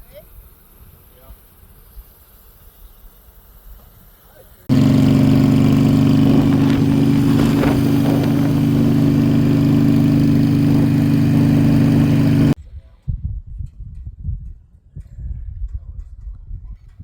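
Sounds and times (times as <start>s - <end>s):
motorcycle engine running: 4.7s - 12.6s.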